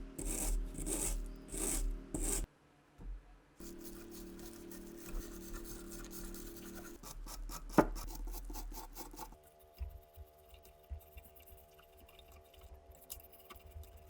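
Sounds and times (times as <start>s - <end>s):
file scraping metal: 0.0s - 2.5s.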